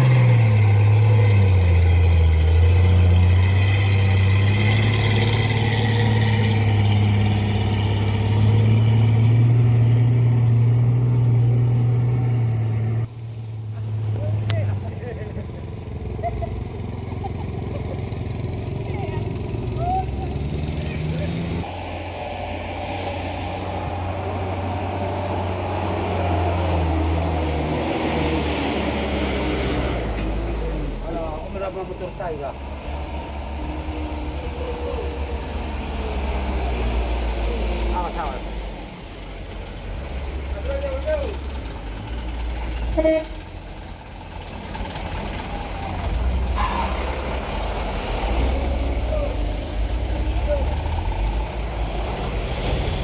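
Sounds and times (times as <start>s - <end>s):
truck diesel engine under load: 0.0s - 53.0s
loud pitched horn blast: 42.9s - 43.4s.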